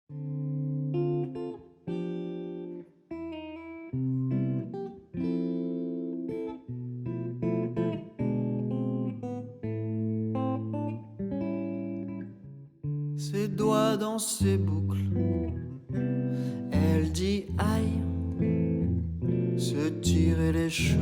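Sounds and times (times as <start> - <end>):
acoustic guitar chords: 13.2 - 15.7, 16.3 - 21.0.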